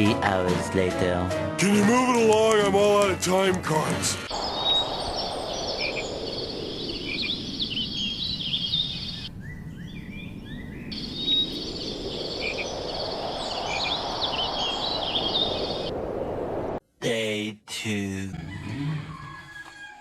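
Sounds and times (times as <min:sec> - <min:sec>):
outdoor background rush: 0:04.2 - 0:16.8
birds chirping and calling: 0:04.3 - 0:15.9.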